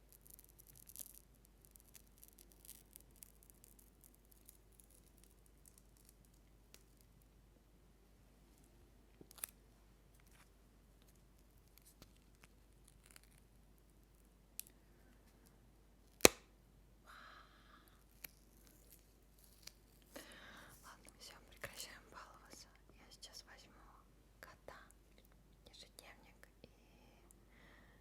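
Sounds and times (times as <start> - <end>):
soft rustle: 18.1 - 22.5.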